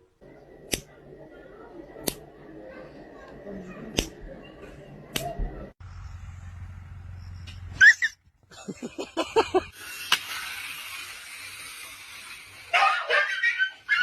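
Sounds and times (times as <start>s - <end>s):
steady hiss: 9.2s - 12.8s
dog yelping and whimpering: 12.8s - 14.0s.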